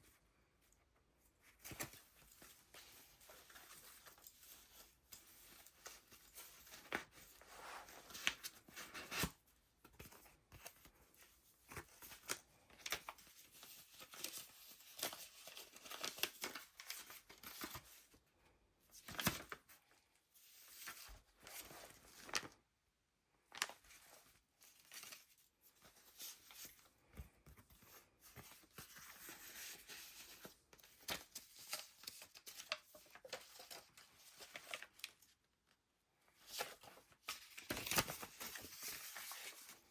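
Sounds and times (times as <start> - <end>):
paper pages rustling: 1.4 - 18.1, 18.9 - 19.8, 20.4 - 22.6, 23.5 - 35.3, 36.3 - 39.9.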